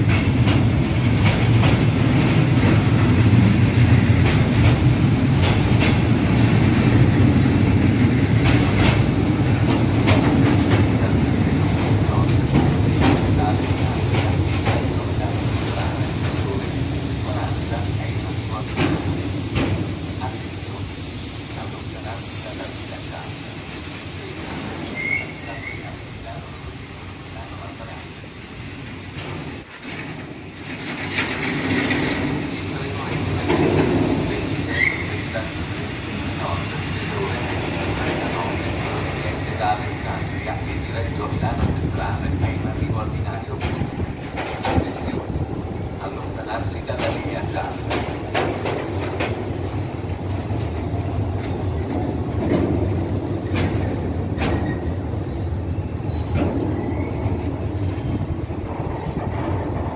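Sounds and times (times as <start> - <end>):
wheels clacking over rail joints: 0.0 - 32.6
freight train low rumble: 0.0 - 59.9
faint high wheel squeal: 12.9 - 35.3, 42.4 - 44.9, 55.8 - 58.2.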